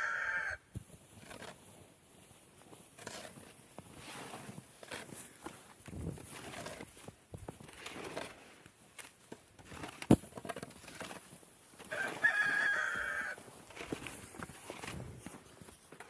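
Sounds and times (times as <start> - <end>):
rooster crowing: 0.0 - 0.6, 11.9 - 13.4
small knocks and rustles: 0.7 - 12.5.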